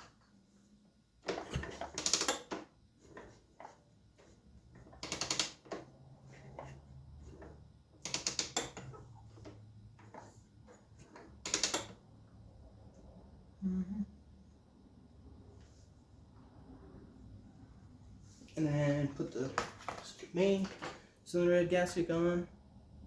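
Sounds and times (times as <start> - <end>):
faint low hum: 12.1 - 23.0.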